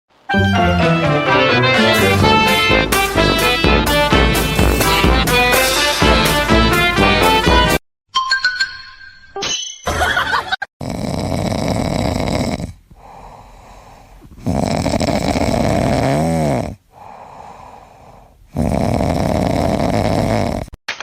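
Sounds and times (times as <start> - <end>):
loud rhythmic snoring: 2.3 - 5.7, 10.8 - 20.8.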